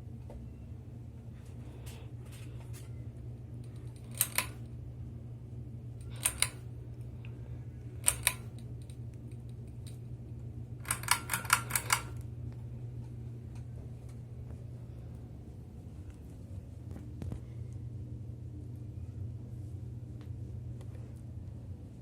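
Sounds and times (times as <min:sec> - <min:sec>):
ceiling fan humming: 0:00.0 - 0:22.0
sharp clicks: 0:03.7 - 0:04.6, 0:06.0 - 0:06.6, 0:08.0 - 0:10.0, 0:10.8 - 0:12.2.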